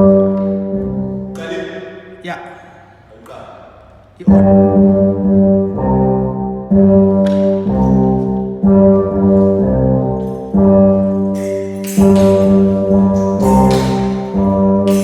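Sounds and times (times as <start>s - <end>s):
brass instrumental music: 4.3s - 15.0s.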